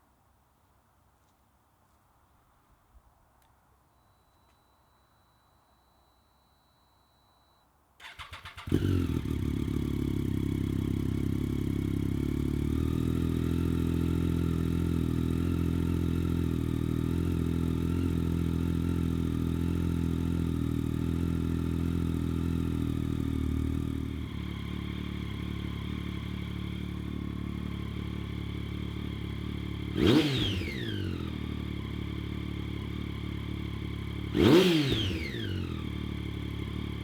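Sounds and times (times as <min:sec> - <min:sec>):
starter cranking engine: 0:08.0 - 0:08.8
motorcycle engine idling: 0:08.0 - 0:37.0.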